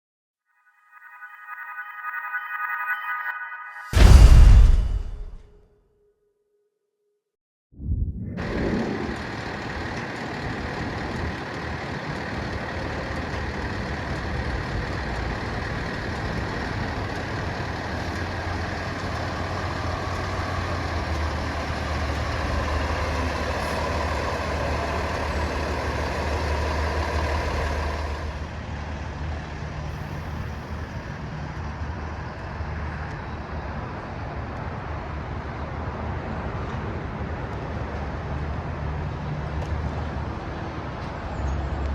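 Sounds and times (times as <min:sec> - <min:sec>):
diesel truck engine droning: 0:08.4 - 0:32.6.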